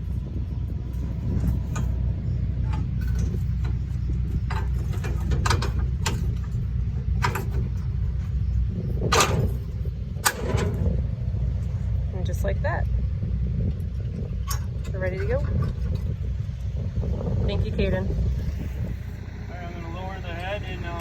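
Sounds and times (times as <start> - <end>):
tractor engine idling: 0.0 - 21.0
metallic clanks and knocks: 1.0 - 8.4, 9.0 - 11.0, 14.4 - 16.2.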